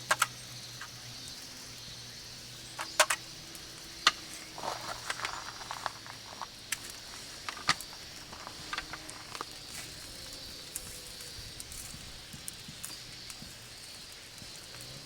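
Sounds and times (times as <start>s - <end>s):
campfire crackling and popping: 0.0s - 15.0s
faint steady hiss: 0.0s - 15.0s.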